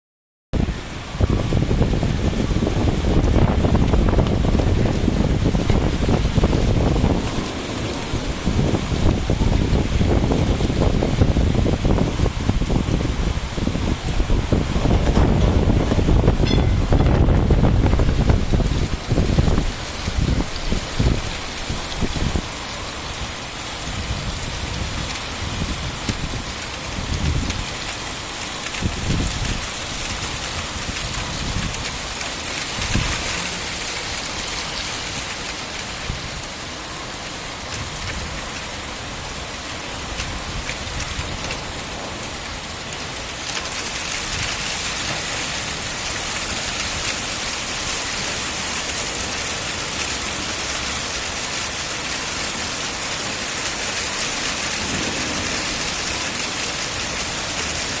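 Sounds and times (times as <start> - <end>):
low thunder rumbles: 0.6 - 27.9, 54.0 - 58.0
heavy rain falling: 0.6 - 58.0.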